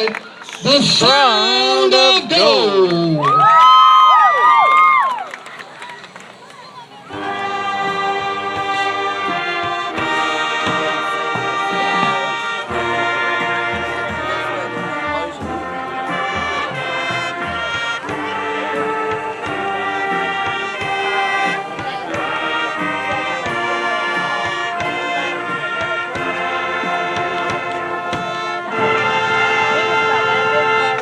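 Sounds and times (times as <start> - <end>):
brass melody: 7.0 - 31.0
marching band playing rock: 7.1 - 31.0.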